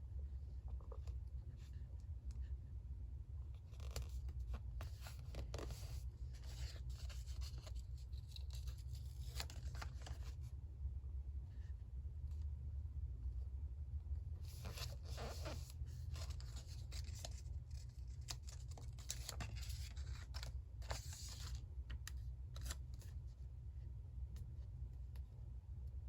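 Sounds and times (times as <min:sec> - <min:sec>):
steady low hum: 0:00.0 - 0:26.0
paper rustling: 0:03.7 - 0:10.4, 0:14.4 - 0:23.1.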